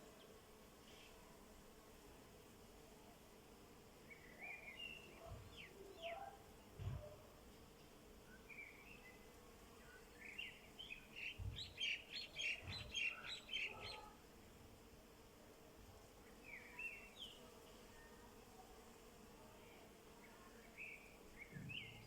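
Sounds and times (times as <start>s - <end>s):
songbird twittering: 10.2s - 14.0s.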